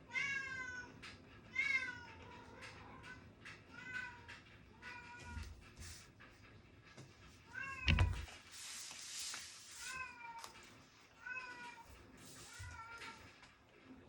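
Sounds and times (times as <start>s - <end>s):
house cat meowing: 7.6s - 8.3s.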